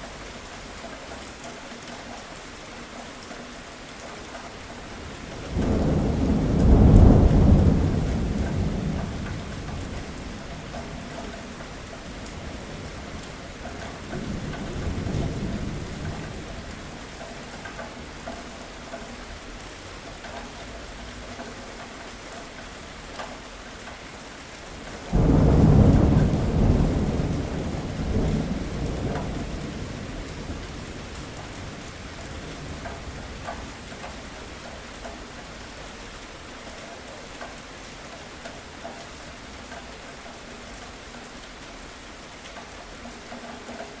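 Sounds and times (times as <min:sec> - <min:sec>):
steady rain: 0:00.0 - 0:44.0
thunder rumbling: 0:05.2 - 0:11.0, 0:25.0 - 0:33.9.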